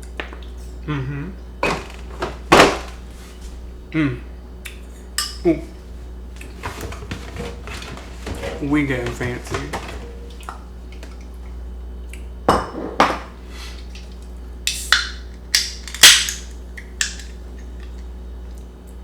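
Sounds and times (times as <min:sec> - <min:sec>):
steady low hum: 0:00.0 - 0:14.7
utensil clinking against a bowl: 0:06.4 - 0:10.6.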